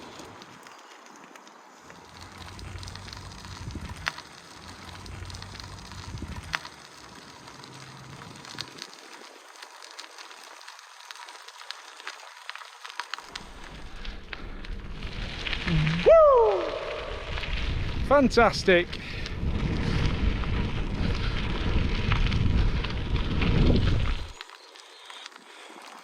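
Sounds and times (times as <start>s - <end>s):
bicycle riding over rough path: 0.0s - 26.0s
wind rumbling on microphone: 2.0s - 8.9s, 13.3s - 24.4s.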